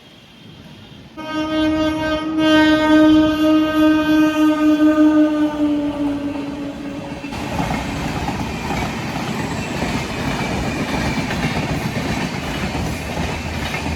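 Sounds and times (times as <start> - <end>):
locomotive horn: 1.2 - 7.5
train wheels clattering on rails: 5.7 - 13.9.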